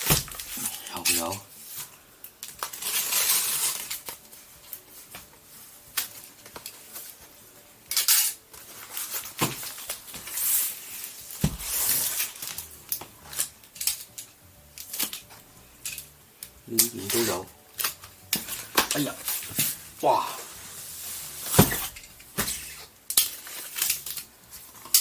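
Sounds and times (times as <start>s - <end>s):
box knocks: 11.4s - 11.9s, 21.5s - 22.6s.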